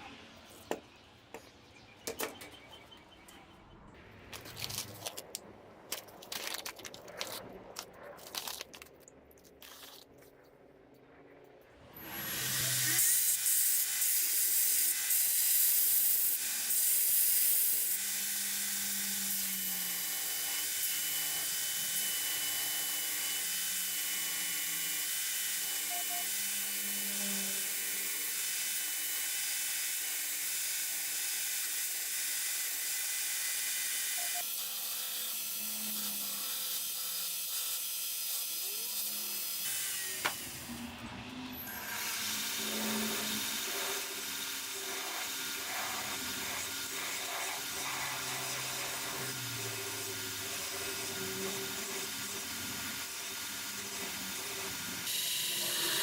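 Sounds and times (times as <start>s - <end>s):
belt grinder running: 11.9s - 56.0s.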